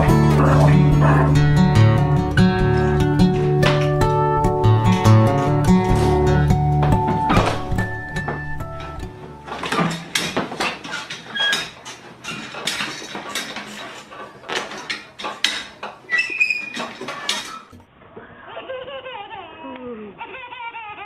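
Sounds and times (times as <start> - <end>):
clatter of knocks and clinks: 8.3 - 16.0.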